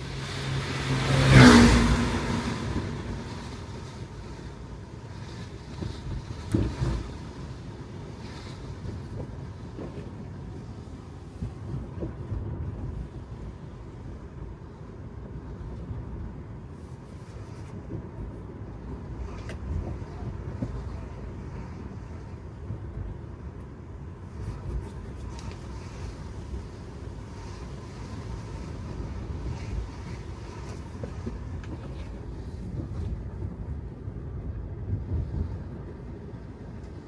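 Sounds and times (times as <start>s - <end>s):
tyre rumble on wet road: 0.0s - 10.7s.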